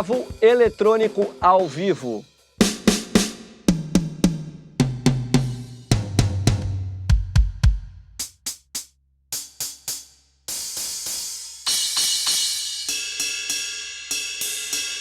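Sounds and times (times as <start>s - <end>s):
cymbal crash: 0.0s - 3.7s, 10.5s - 15.0s
tom drum fill: 0.0s - 8.4s
bass drum hits: 2.6s - 8.2s.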